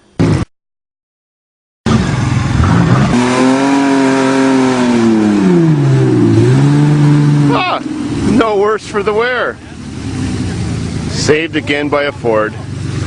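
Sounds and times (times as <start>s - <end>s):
vehicle engine revving: 1.9s - 13.0s.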